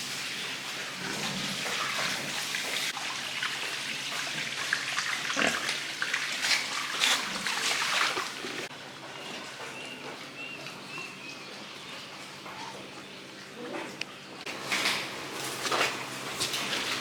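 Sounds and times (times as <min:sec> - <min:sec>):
pigs vocalizing: 0:04.3 - 0:08.7.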